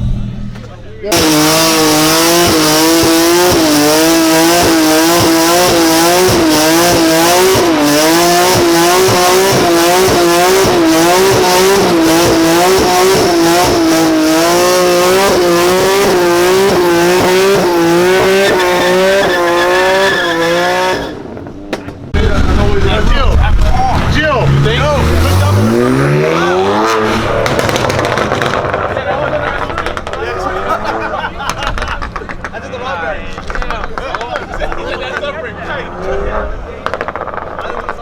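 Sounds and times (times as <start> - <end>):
car engine revving hard: 1.1 - 21.3, 22.2 - 31.4
car tyres squealing in a skid: 14.8 - 21.4.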